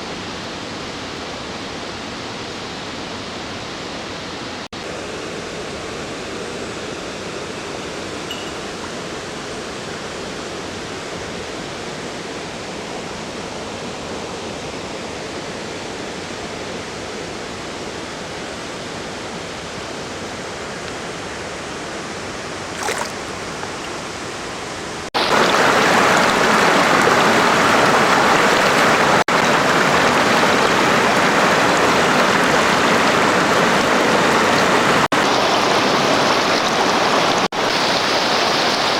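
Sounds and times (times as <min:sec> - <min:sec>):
river water rushing over rocks: 0:22.7 - 0:38.9.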